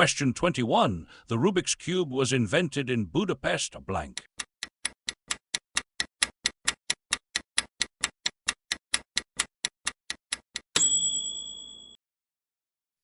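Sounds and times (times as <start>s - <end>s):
clock-like timer ticking: 0.1s - 0.7s, 3.1s - 10.9s
bright ringing ding: 10.8s - 12.0s.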